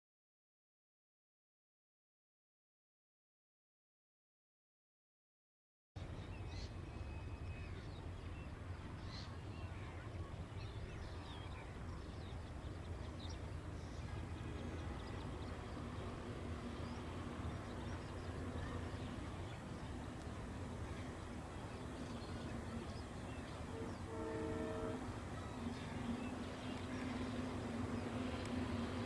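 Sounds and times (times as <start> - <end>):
birds chirping: 10.6 - 29.0.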